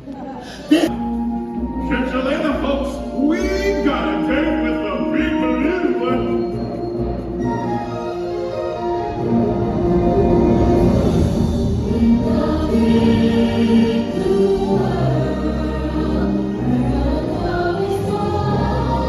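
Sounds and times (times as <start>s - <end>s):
chorus singing: 0.4s - 19.0s
musical backing with deep bass: 0.9s - 19.0s.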